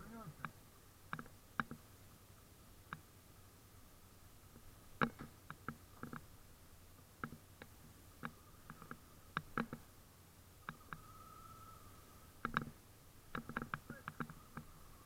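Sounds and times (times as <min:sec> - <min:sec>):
light clicks and knocks: 0:04.5 - 0:06.3, 0:07.2 - 0:09.9, 0:12.4 - 0:14.7
faint high whine: 0:06.4 - 0:15.0.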